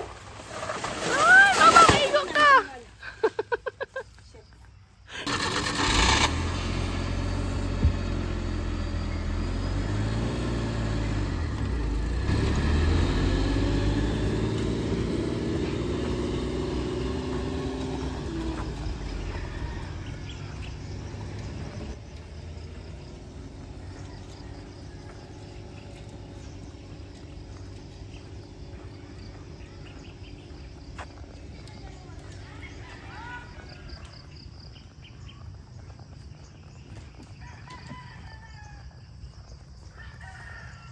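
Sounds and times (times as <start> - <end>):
outdoor background noise: 0.0 - 40.9
motor vehicle engine running: 5.2 - 38.0.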